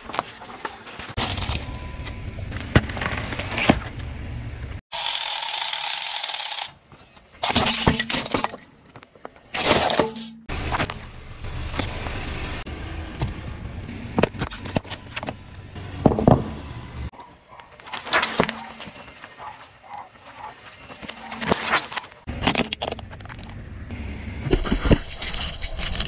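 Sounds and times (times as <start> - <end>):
objects crunching under car tyre: 0.0 - 4.1, 7.4 - 12.5.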